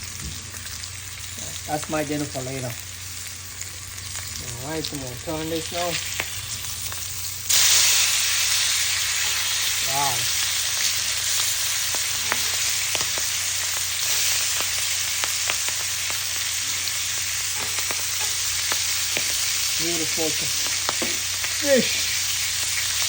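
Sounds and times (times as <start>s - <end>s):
fish sizzling on a grill: 0.0s - 23.0s.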